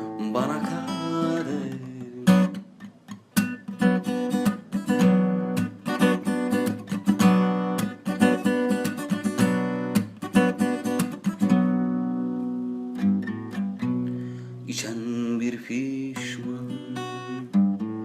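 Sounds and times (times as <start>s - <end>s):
person singing: 0.0s - 2.6s, 14.6s - 17.8s
guitar strummed and picked: 0.0s - 18.0s.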